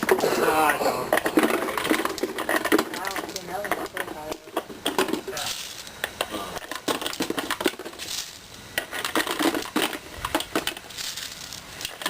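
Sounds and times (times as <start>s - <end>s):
rocks clattering into a bottle: 0.0s - 12.0s.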